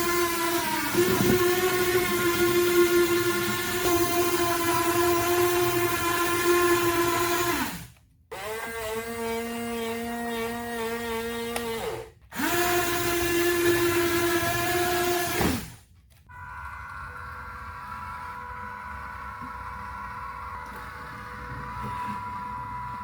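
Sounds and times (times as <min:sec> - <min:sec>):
small electric motor whining: 0:00.0 - 0:07.8.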